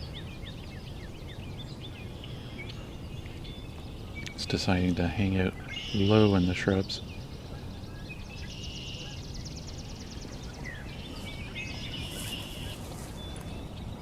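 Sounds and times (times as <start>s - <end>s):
birds trilling and chattering: 0.0s - 14.0s.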